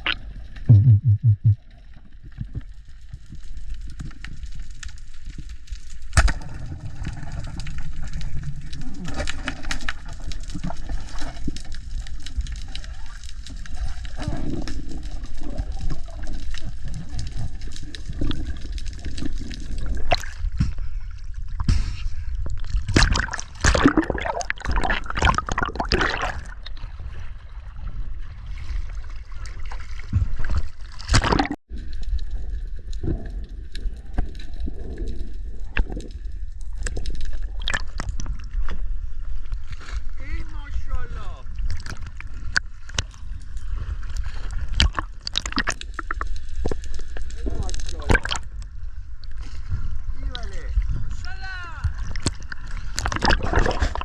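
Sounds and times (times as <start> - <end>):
water sloshing and gurgling: 0.0 - 54.0
low rumble: 0.6 - 1.6.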